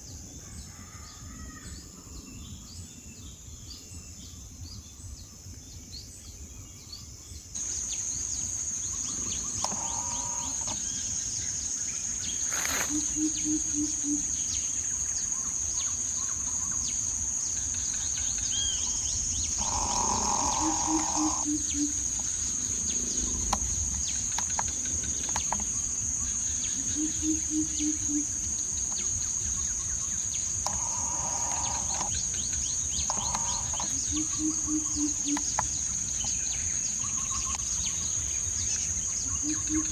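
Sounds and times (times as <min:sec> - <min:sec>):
high insect drone: 0:07.6 - 0:39.9
bird hooting low notes: 0:09.2 - 0:10.8, 0:18.7 - 0:22.2, 0:30.6 - 0:32.1.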